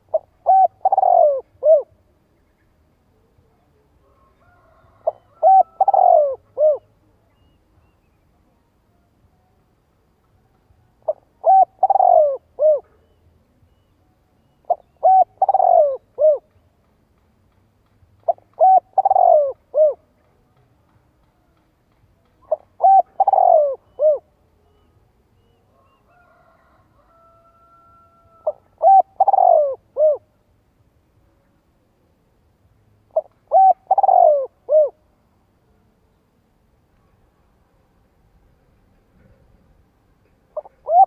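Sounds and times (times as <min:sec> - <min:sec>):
dove cooing: 0:00.0 - 0:02.0, 0:04.4 - 0:06.9, 0:11.0 - 0:13.2, 0:14.6 - 0:16.6, 0:18.3 - 0:20.1, 0:22.4 - 0:24.8, 0:27.9 - 0:30.4, 0:33.1 - 0:35.0, 0:40.5 - 0:41.0.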